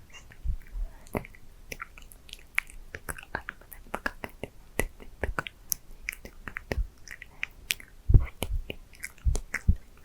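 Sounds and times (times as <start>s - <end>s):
wet mouth and lip clicks: 0.1s - 10.0s.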